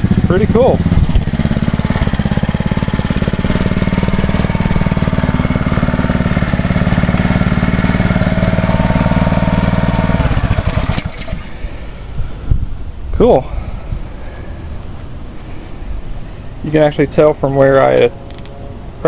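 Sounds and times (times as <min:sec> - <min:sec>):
pressure washer engine running: 0:00.0 - 0:11.6.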